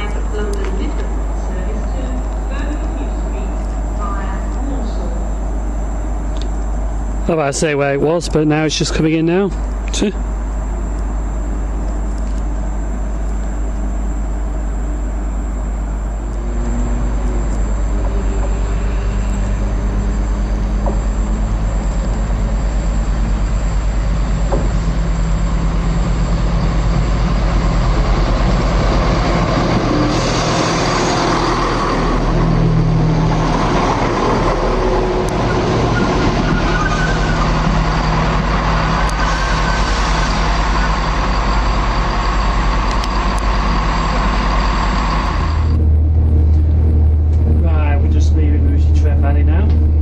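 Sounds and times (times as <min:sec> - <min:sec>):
train motor hum: 0:00.0 - 0:50.0
train wheel rumble: 0:00.0 - 0:50.0
rush of noise: 0:15.2 - 0:50.0.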